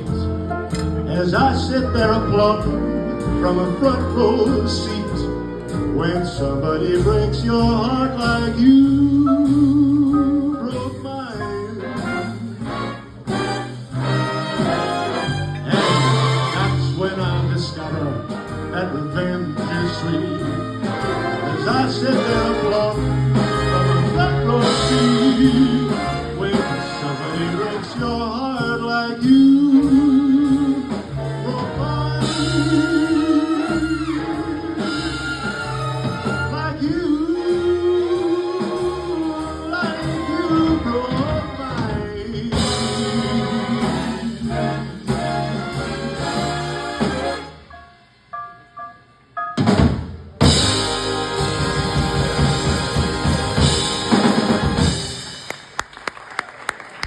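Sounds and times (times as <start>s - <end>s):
man singing a ballad: 0.0s - 12.3s, 15.7s - 20.6s, 21.5s - 35.2s, 36.5s - 44.8s
live band with guitar and bass: 0.0s - 47.7s, 49.6s - 55.8s
busy drum fills: 0.0s - 47.8s, 49.4s - 57.0s.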